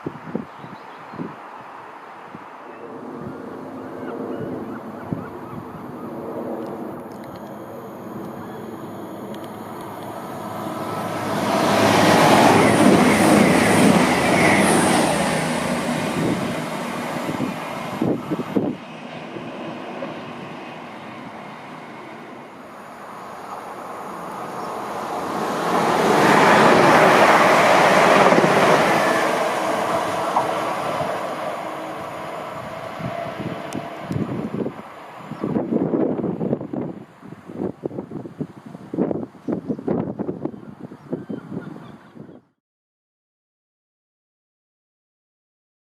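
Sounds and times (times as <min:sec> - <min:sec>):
train wheels on rails: 0:08.2 - 0:36.1.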